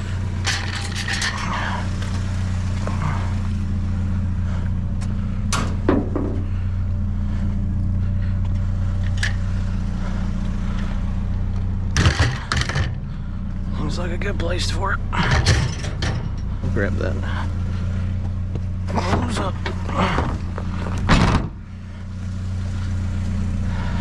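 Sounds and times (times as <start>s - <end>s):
truck engine running: 0.0s - 24.0s
knocks: 5.5s - 6.5s.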